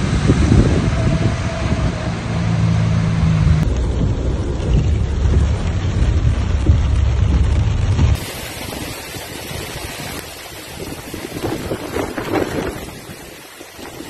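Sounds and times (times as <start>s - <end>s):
car running noise: 0.0s - 8.5s
floodwater rushing: 0.0s - 14.0s
heavy rain: 0.0s - 14.0s
wind buffeting microphone: 0.0s - 14.0s.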